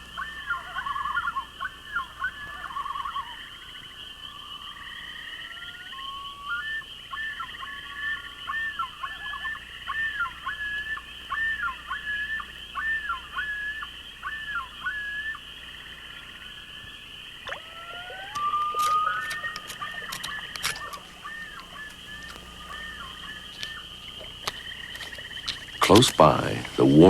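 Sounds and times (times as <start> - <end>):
high trilling night chorus: 0.0 - 27.0
night bird whistling: 0.0 - 27.0
sharp clicks: 17.5 - 26.9.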